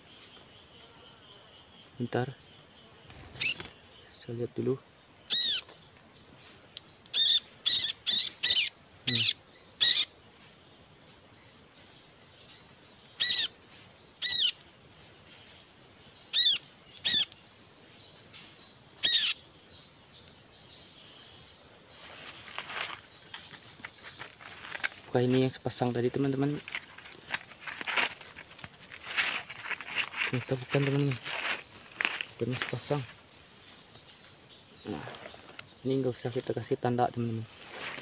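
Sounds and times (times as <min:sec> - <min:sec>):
cicadas and crickets droning: 0:00.0 - 0:38.0
small bird chirping: 0:03.1 - 0:04.3, 0:05.3 - 0:05.9, 0:07.1 - 0:10.1, 0:12.3 - 0:13.6, 0:14.2 - 0:14.6, 0:16.2 - 0:31.1
soft rustling: 0:22.0 - 0:33.2, 0:37.5 - 0:38.0.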